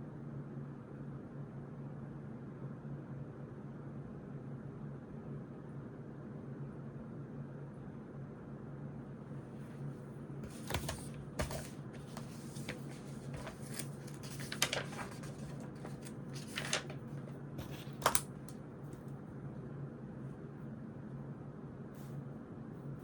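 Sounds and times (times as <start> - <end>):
pages rustling: 10.4 - 19.0
pen scratching on paper: 17.6 - 18.2.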